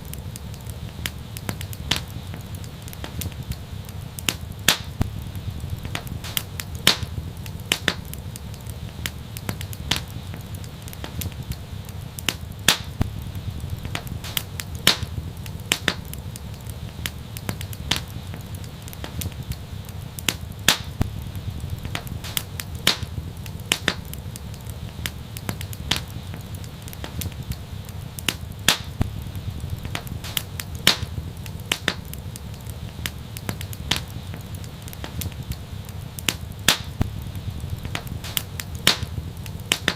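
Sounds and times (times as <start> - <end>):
low steady rumble: 0.0 - 39.8
wood fire crackling: 0.0 - 39.9.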